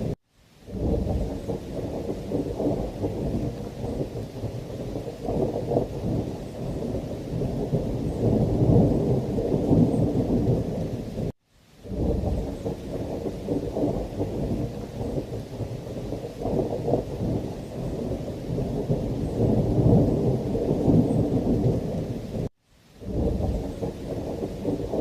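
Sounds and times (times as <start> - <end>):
heavy rain: 0.0 - 25.0
low thunder rumble: 0.0 - 25.0.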